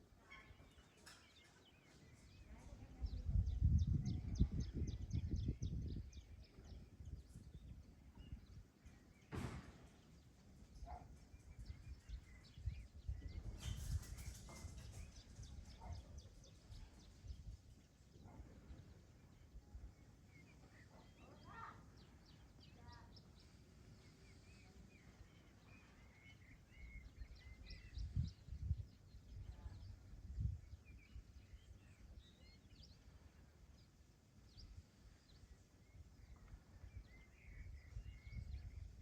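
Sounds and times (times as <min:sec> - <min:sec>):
bird chirping: 0:00.2 - 0:39.0
low rumbling wind gusts: 0:02.3 - 0:20.2, 0:21.8 - 0:39.0.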